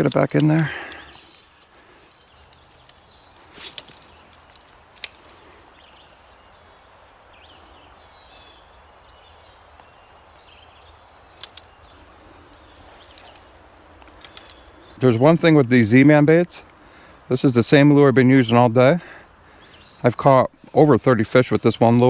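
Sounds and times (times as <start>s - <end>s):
faint bird chirps: 0.6s - 15.2s.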